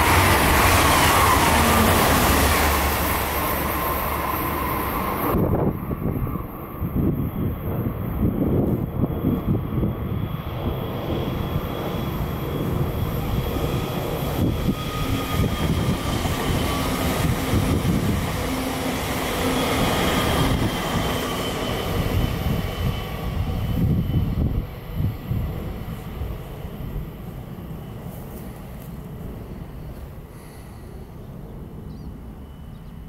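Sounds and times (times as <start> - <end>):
train wheels rolling on rails: 0.0 - 24.7.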